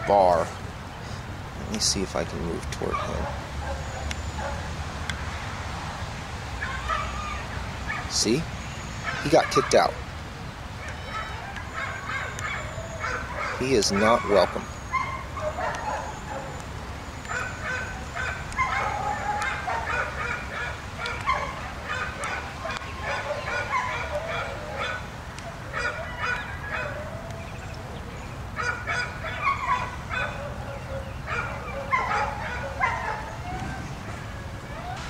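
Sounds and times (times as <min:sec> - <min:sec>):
honking animal calls: 0:09.0 - 0:10.0, 0:10.8 - 0:16.6.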